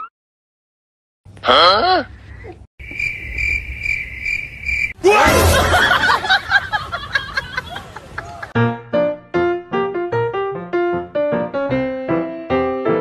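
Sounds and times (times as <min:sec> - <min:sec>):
cricket chirping sound effect: 0:02.8 - 0:06.2.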